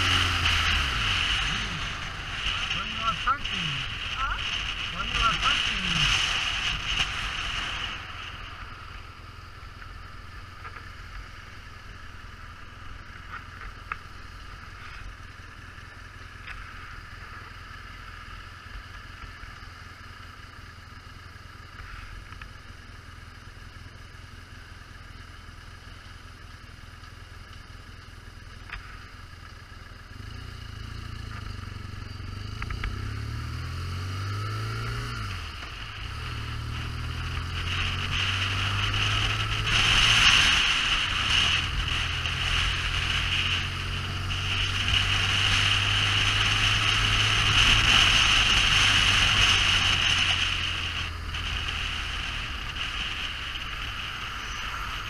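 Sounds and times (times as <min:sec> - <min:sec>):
motorcycle engine revving: 0:00.0 - 0:22.4, 0:28.6 - 0:55.0
faint ticks: 0:21.7 - 0:22.6, 0:27.0 - 0:29.6, 0:32.6 - 0:33.0.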